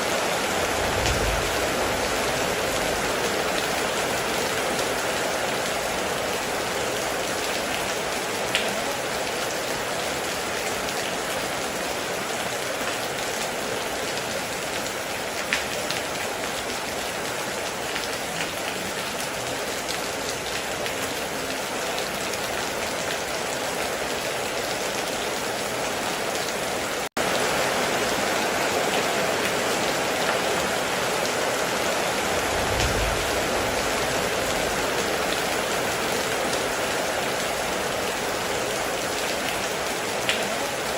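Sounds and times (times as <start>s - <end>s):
heavy rain falling: 0.0s - 40.9s
low rumble: 0.5s - 3.2s, 32.3s - 35.3s.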